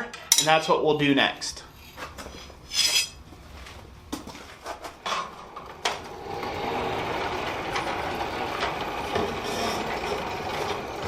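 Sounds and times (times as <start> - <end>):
forge running noise: 3.2 - 11.0.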